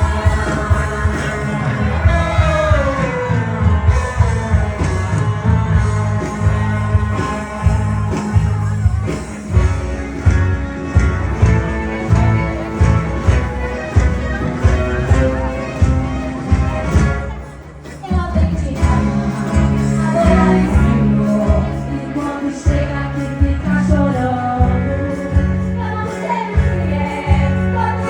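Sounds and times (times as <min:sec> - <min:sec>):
band playing gospel music: 0:00.0 - 0:28.0
women's choir singing: 0:18.8 - 0:24.1.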